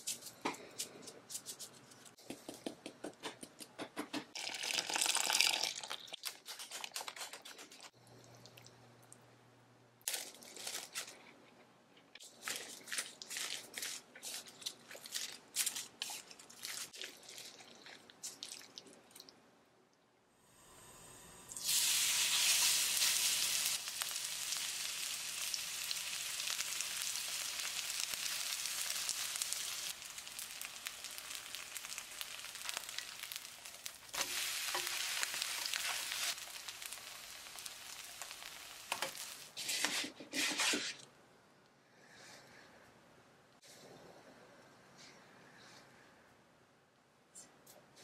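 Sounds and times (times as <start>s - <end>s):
batter sizzling in hot oil: 21.5s - 39.6s.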